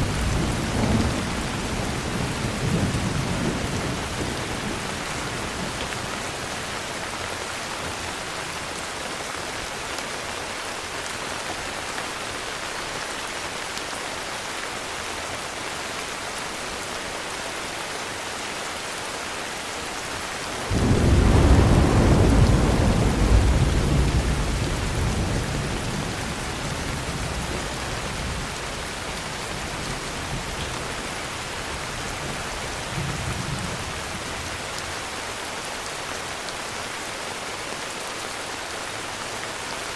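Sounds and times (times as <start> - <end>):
thunder clap rumbling: 0.0 - 5.8, 20.6 - 30.7
heavy rain falling: 0.0 - 39.9.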